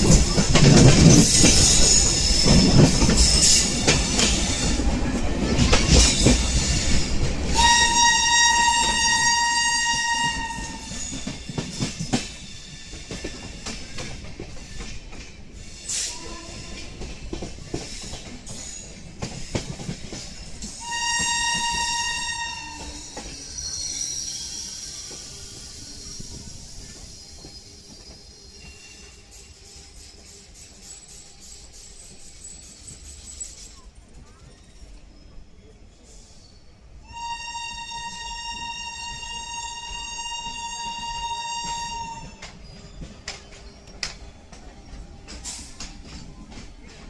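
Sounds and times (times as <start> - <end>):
train wheels clattering on rails: 0.0 - 35.1, 37.8 - 47.0
train horn blast: 7.5 - 11.0, 20.8 - 23.1, 37.1 - 42.4.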